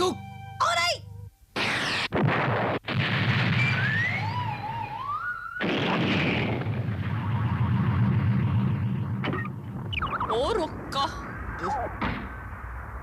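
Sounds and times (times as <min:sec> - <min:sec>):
rushing explosion with whistling: 0:01.6 - 0:04.5, 0:05.6 - 0:13.0
weapon blast: 0:01.6 - 0:04.5, 0:05.6 - 0:12.6.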